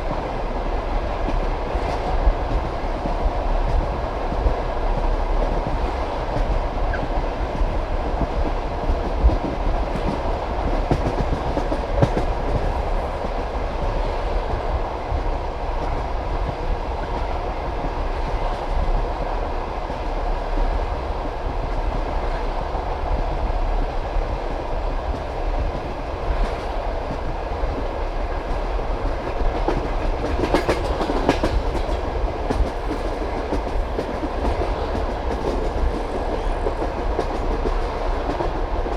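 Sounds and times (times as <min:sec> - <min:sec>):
train carriage rumbling: 0:00.0 - 0:38.9.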